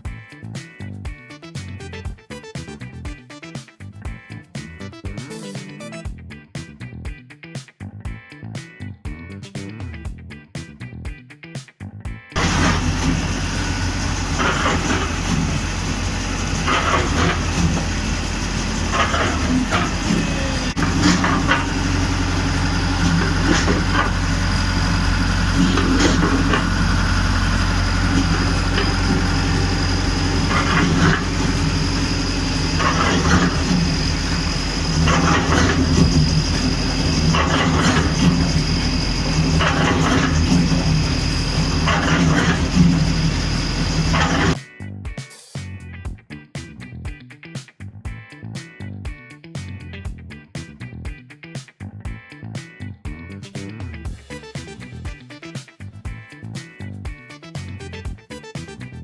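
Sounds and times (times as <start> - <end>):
cement mixer rattling clatter: 12.4 - 44.6
tractor engine running: 12.4 - 44.6.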